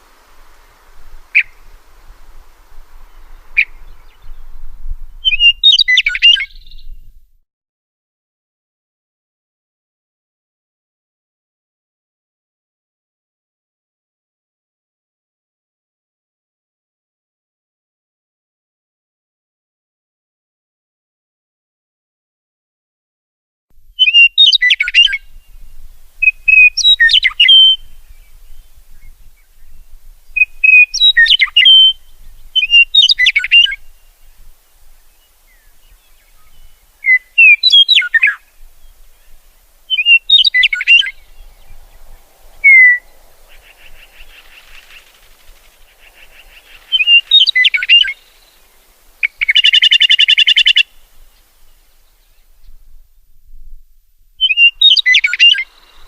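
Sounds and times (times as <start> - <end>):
buzzy rattling bird call: 0.0 - 4.2, 37.0 - 51.0
songbird chirping: 0.0 - 7.2, 23.9 - 53.8, 54.4 - 56.0.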